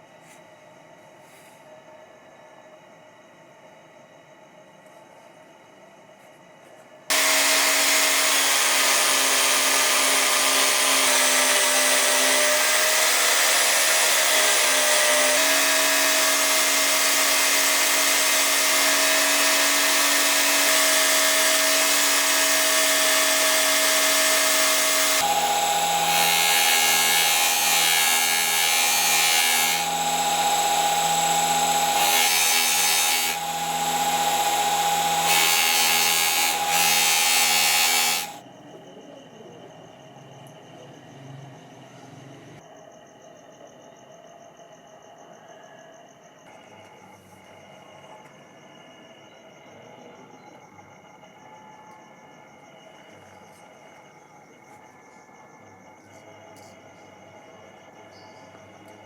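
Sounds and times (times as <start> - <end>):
electric power tool motor whine: 7.1 - 38.4.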